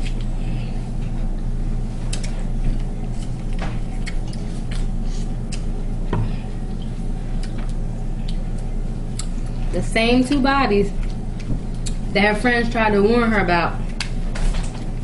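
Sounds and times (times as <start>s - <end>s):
steady low hum: 0.0s - 15.0s
wet chewing: 2.0s - 5.7s, 10.9s - 12.1s.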